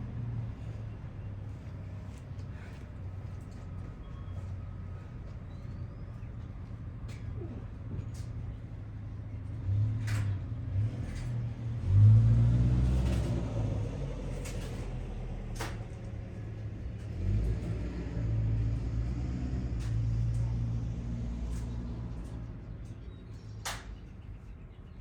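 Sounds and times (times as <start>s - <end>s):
vehicle engine rumbling: 0.0s - 25.0s.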